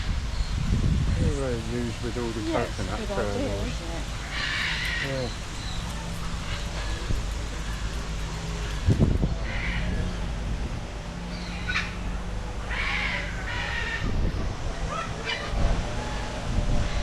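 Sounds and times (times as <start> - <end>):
steady low hum: 1.2 - 12.7
short animal calls: 2.4 - 8.9.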